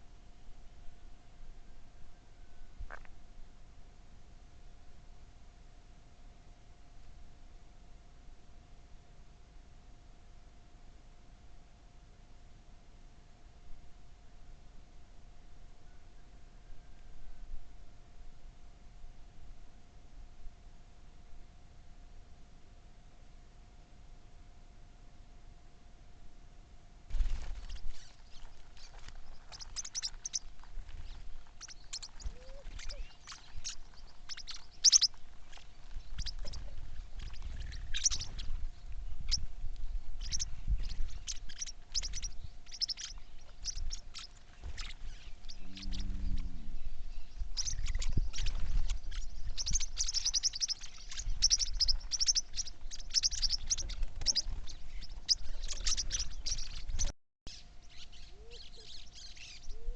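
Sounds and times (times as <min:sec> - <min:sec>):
faint steady hum: 0:00.0 - 0:59.9
birds chirping: 0:27.2 - 0:59.9
low rumble: 0:45.0 - 0:50.3.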